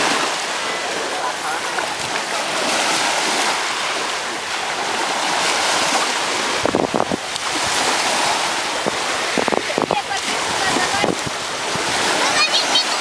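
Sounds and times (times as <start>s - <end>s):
sea surf on shore: 0.0s - 13.0s
wind on microphone: 1.8s - 13.0s.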